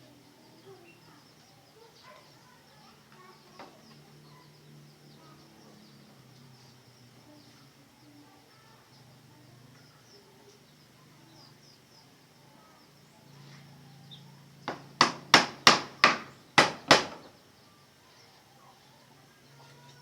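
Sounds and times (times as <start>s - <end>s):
hammer striking wood: 14.7s - 17.3s.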